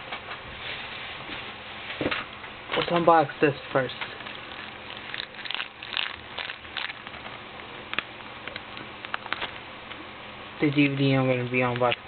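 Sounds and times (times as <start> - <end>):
packaging rustling: 3.8 - 10.0.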